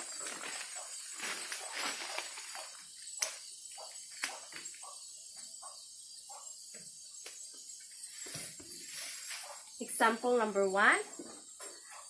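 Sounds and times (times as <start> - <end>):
high-pitched hiss or chirring: 7.0 - 10.4.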